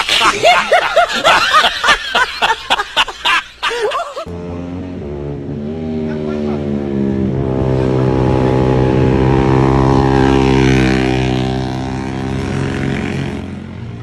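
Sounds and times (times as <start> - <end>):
motorcycle engine running: 4.3 - 14.0.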